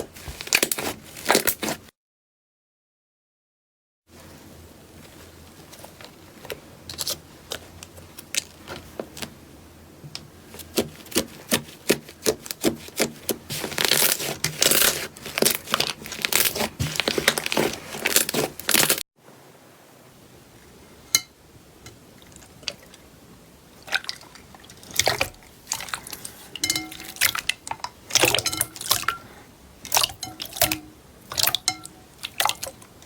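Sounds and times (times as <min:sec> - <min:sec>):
crunchy slime crackling: 0:00.2 - 0:01.8, 0:10.6 - 0:19.0.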